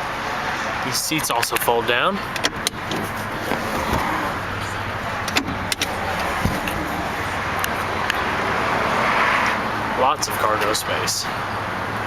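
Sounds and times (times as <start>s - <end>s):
outdoor background noise: 0.0s - 12.0s
seat latch clicks: 2.3s - 4.2s, 5.2s - 6.9s
low clunk: 5.3s - 7.0s.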